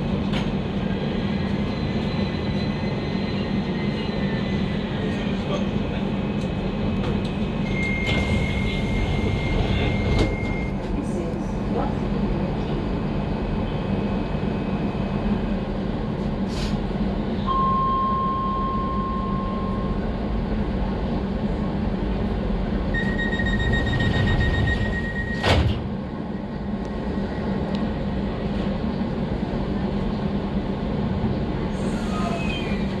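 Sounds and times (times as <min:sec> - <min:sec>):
train low hum: 0:00.0 - 0:33.0
higher warning tone: 0:17.4 - 0:20.0, 0:22.9 - 0:25.4
long electronic tone: 0:17.4 - 0:20.0, 0:22.9 - 0:25.4
sliding doors closing thud: 0:23.8 - 0:26.0.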